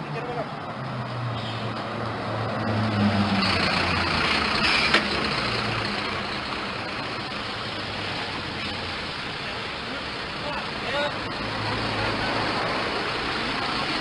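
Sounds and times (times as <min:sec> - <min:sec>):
diesel engine running: 0:03.3 - 0:14.0.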